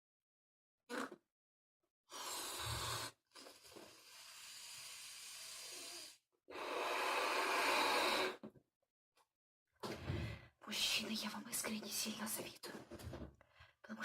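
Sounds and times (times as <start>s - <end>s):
balloon being blown up by mouth: 0.9s - 1.2s.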